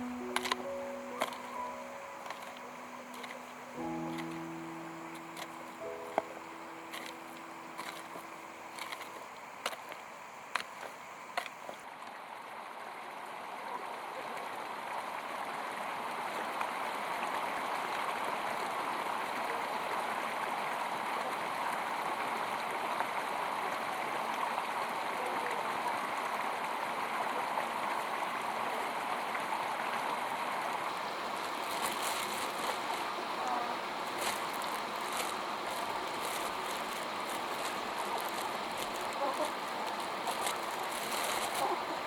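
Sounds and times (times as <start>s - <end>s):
flowing water rushing: 0.0s - 13.5s, 25.7s - 42.0s.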